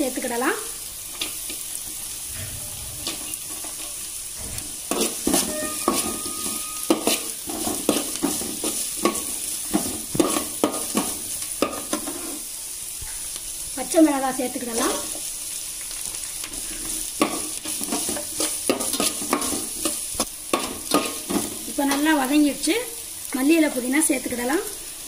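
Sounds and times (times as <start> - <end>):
onion sizzling in hot oil: 0.0 - 25.0
metal skimmer scraping a pot: 4.9 - 7.2.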